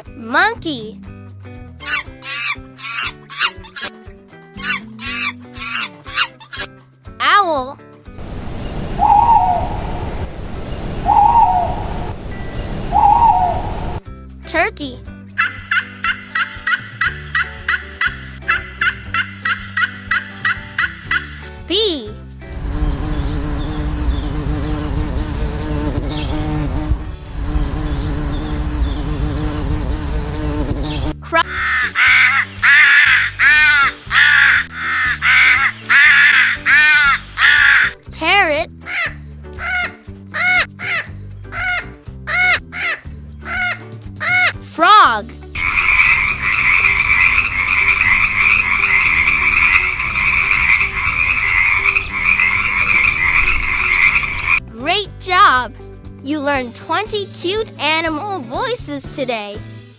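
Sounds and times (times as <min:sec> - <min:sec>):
owl hooting: 0:08.2 - 0:14.0, 0:30.2 - 0:38.0, 0:38.9 - 0:44.4, 0:45.6 - 0:54.6
steady rushing background noise: 0:08.2 - 0:14.0, 0:22.5 - 0:38.0, 0:45.5 - 0:54.6
crow cawing: 0:08.6 - 0:10.2, 0:11.0 - 0:12.2, 0:12.8 - 0:14.0, 0:31.5 - 0:38.0, 0:38.9 - 0:44.5, 0:45.6 - 0:54.6
background music with a beat: 0:15.0 - 0:22.8, 0:45.2 - 0:59.9.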